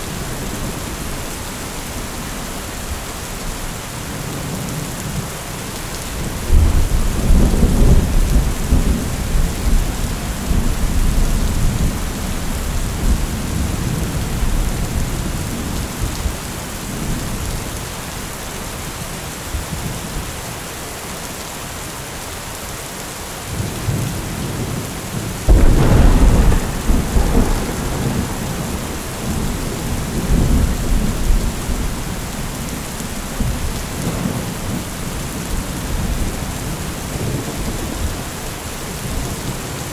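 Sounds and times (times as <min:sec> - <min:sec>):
heavy rain falling: 0:00.0 - 0:39.9
thunder rumbling: 0:25.4 - 0:38.1.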